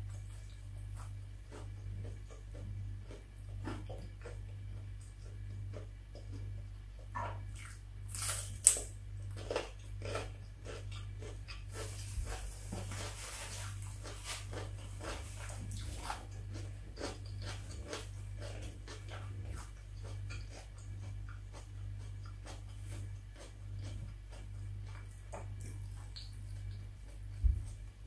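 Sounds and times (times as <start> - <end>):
crunchy chewing: 0.0 - 28.0
crunchy bite into pepper: 8.1 - 10.8.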